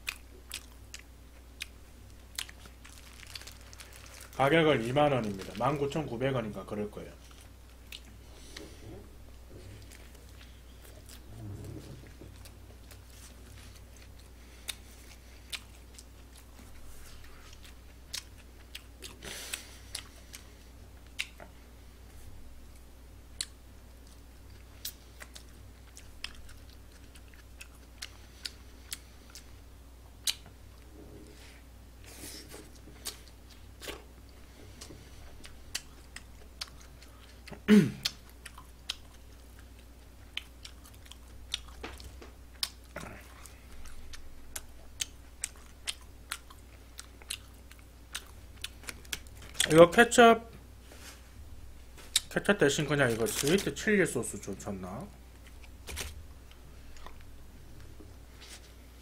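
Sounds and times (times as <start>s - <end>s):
chewing and biting: 0.0s - 4.2s, 12.0s - 21.5s, 23.4s - 29.5s, 34.8s - 49.7s.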